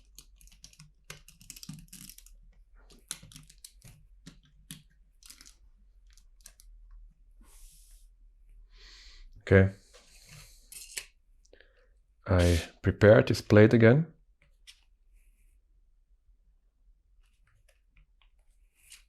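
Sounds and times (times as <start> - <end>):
plastic pieces clicking together: 0.0 - 6.7.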